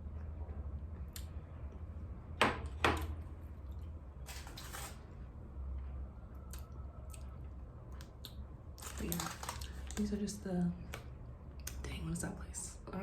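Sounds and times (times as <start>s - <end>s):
steady low hum: 0.0s - 13.0s
rustling scrape: 4.3s - 5.0s.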